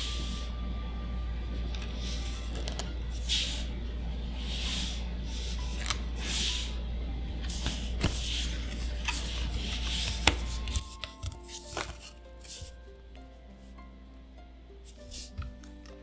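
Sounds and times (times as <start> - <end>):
low hum: 0.0 - 16.0
cards swishing across each other: 1.7 - 6.8, 7.4 - 12.8
card clicks and taps: 7.4 - 12.8, 15.0 - 16.0.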